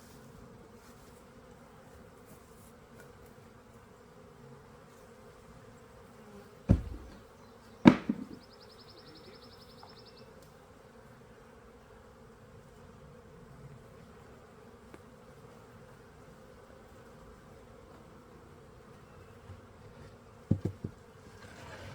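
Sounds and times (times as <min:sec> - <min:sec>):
bees humming: 0:05.7 - 0:10.4
loud knocks: 0:06.7 - 0:07.2, 0:07.9 - 0:08.4, 0:20.5 - 0:21.0.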